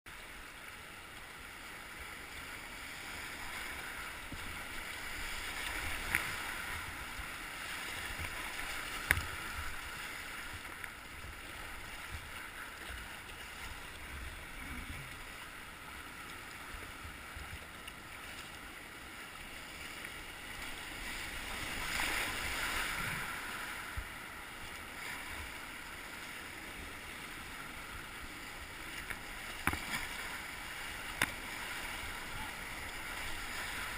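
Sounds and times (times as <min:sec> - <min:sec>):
whitewater rushing: 0:20.6 - 0:33.9.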